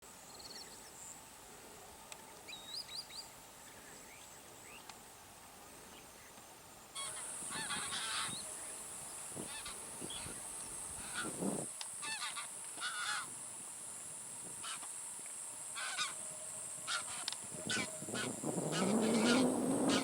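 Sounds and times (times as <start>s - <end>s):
steady high hiss: 0.0s - 20.0s
birds calling: 7.0s - 13.3s, 16.9s - 20.0s.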